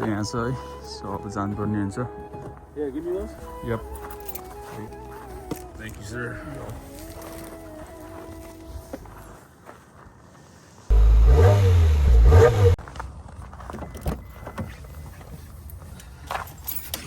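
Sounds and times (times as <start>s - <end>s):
car engine revving: 10.9s - 12.8s.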